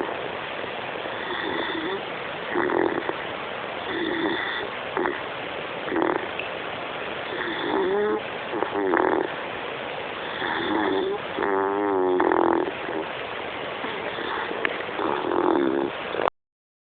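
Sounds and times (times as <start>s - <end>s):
dog snoring: 0.0s - 0.2s, 1.1s - 3.2s, 3.8s - 6.3s, 7.2s - 9.4s, 10.2s - 13.1s, 13.8s - 16.3s.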